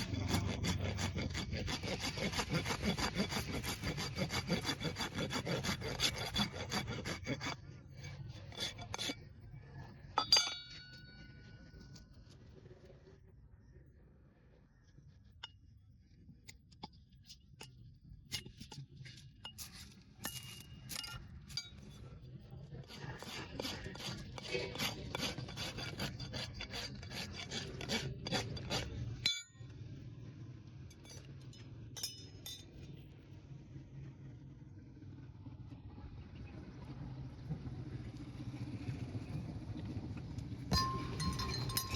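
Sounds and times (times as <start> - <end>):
farrier tools rasping hoof: 0.0 - 9.4, 10.2 - 11.3, 22.7 - 29.4, 40.7 - 41.9.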